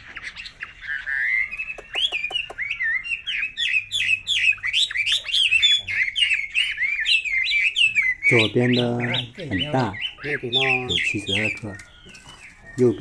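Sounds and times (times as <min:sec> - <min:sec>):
bird whistling calls: 0:00.0 - 0:13.0
sharp clicks: 0:01.6 - 0:02.6.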